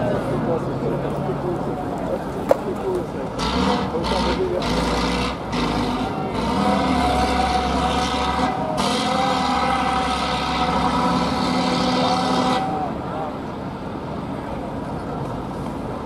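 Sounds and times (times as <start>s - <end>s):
truck engine revving under load: 3.2s - 13.0s.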